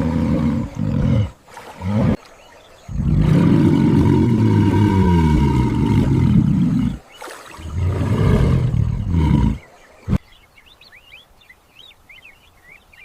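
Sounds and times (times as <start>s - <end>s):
large animal roaring: 0.0s - 2.2s, 2.9s - 7.0s, 7.6s - 10.2s
faint bird chirps: 2.2s - 3.9s, 8.7s - 13.0s.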